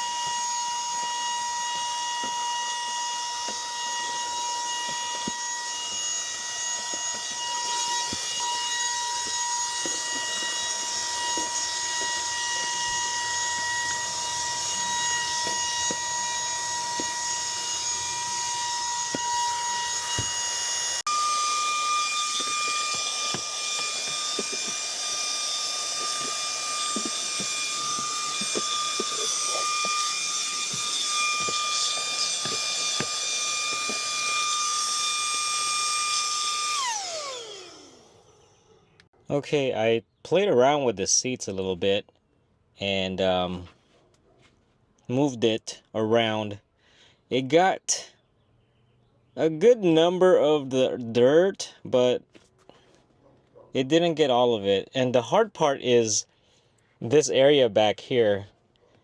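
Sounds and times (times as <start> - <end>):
vacuum motor whine: 0.0 - 39.0.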